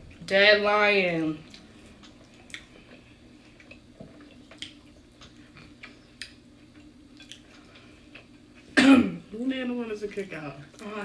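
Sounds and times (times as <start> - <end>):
faint steady hum: 0.0 - 11.0
chewing and mouth clicks: 1.4 - 8.7.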